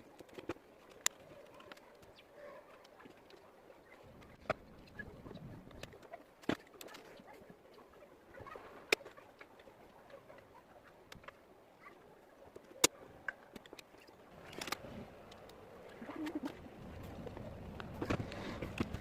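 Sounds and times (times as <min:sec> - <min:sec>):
pigeon cooing: 0:15.9 - 0:16.7.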